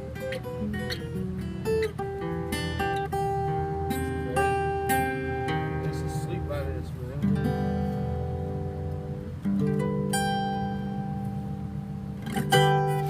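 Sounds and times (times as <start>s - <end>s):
fingerstyle guitar chords: 0.0s - 13.0s.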